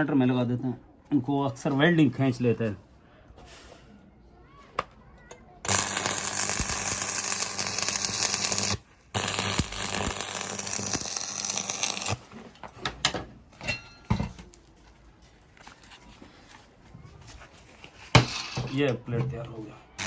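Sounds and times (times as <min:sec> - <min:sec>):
welding arc crackling: 0:05.7 - 0:12.2.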